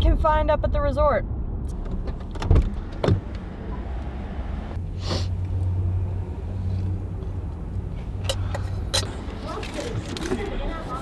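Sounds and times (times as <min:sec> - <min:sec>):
car cabin low rumble: 0:04.8 - 0:11.0
short hiss: 0:04.9 - 0:05.4.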